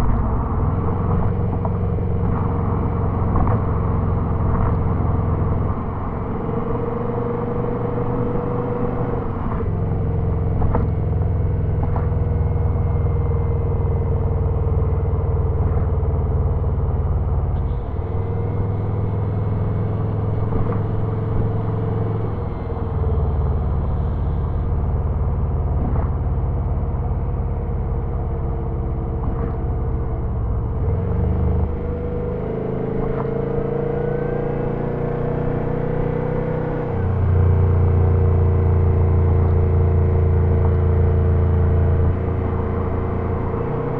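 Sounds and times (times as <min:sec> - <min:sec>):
car engine droning: 0:00.0 - 0:43.9
turbo whine: 0:17.5 - 0:31.8.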